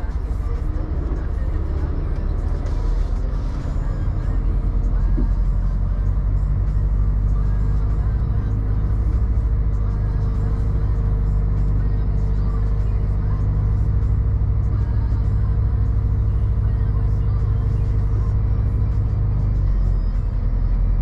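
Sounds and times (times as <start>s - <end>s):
diesel truck engine running: 0.0s - 21.0s.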